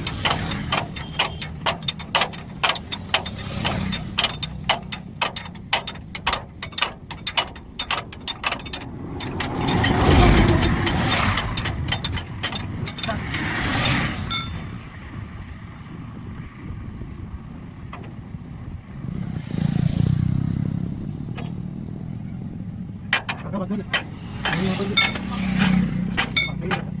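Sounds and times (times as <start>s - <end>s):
metallic tool clicks and taps: 0.0s - 14.6s
vehicle rumble: 0.0s - 27.0s.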